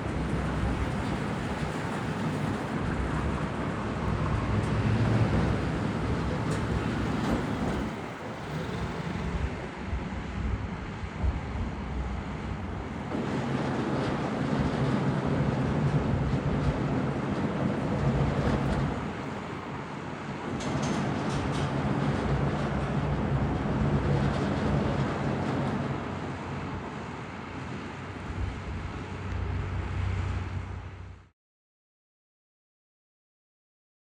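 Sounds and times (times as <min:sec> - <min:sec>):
wind noise on microphone: 0:00.0 - 0:19.8, 0:27.7 - 0:31.2
drilling rig machinery rumble: 0:00.0 - 0:31.2.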